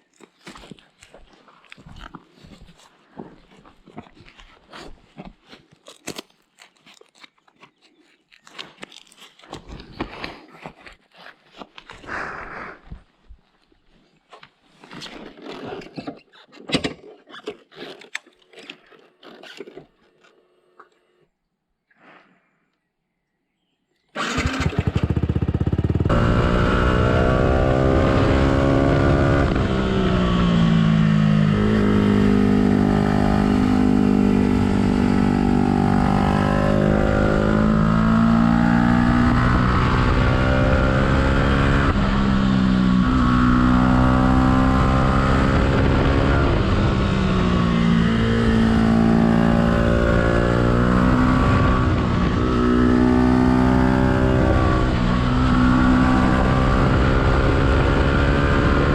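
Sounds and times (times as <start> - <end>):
motorcycle engine revving through gears: 24.2 - 58.9.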